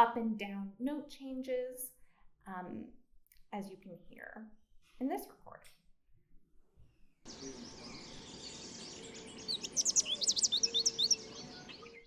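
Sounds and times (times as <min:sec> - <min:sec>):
finch singing: 0:07.3 - 0:12.0.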